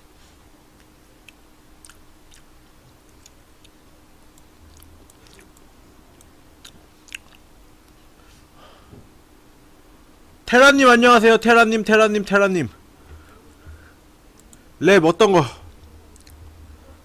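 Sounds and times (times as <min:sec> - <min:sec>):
chewing and mouth sounds: 0:00.8 - 0:08.0, 0:15.8 - 0:16.4.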